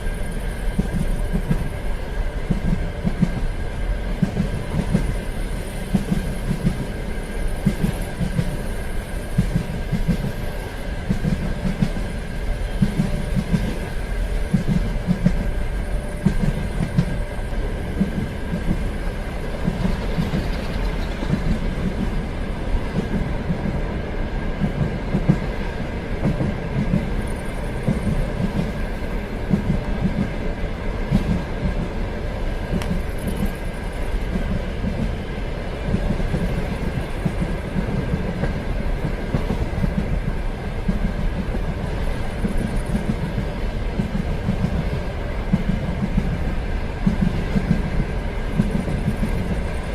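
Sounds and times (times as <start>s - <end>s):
train rumbling on track: 0.0s - 49.9s
wheel clatter over rail joints: 18.0s - 22.3s.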